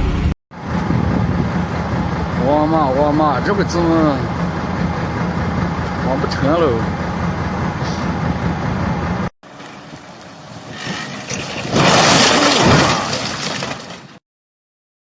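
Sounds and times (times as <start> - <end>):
heavy vehicle engine rumble: 0.0 - 11.6.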